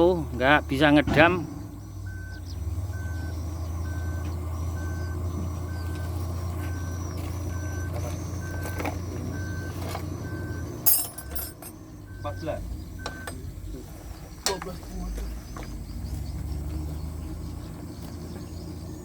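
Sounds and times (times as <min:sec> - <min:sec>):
diesel truck engine idling: 0:00.0 - 0:19.0
electronic warning beeper: 0:00.4 - 0:13.4.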